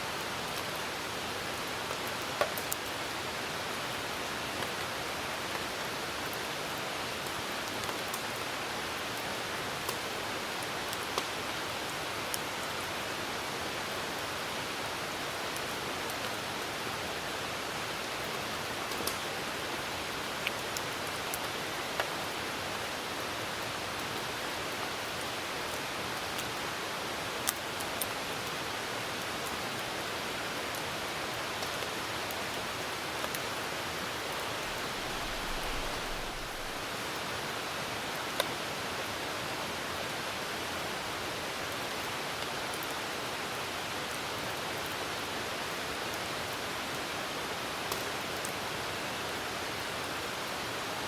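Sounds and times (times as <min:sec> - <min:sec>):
rain falling: 0:00.0 - 0:51.0
campfire popping: 0:34.6 - 0:36.9.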